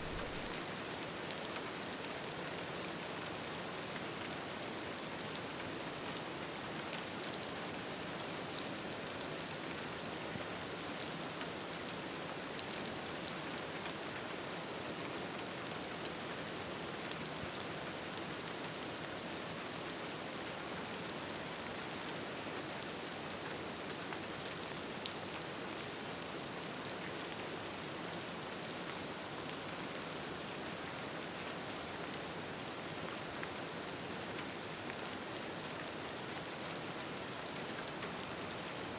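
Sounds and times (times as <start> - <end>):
steady rain hiss: 0.0 - 0.6.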